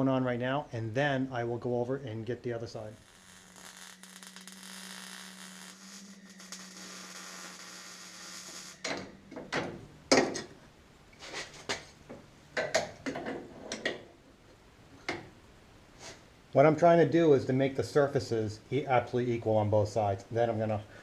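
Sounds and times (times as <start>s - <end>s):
welding hiss and hum: 2.4s - 9.5s.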